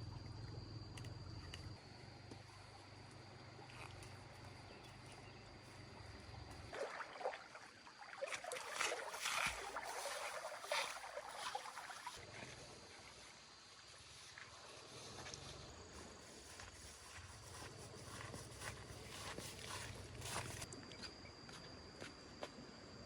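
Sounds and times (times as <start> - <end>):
water splashing and sloshing: 5.0 - 20.7.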